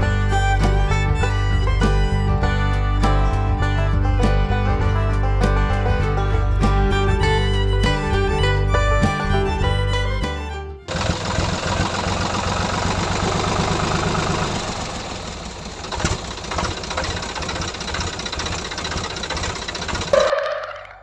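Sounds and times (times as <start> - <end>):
small engine knocking: 0.0 - 20.5.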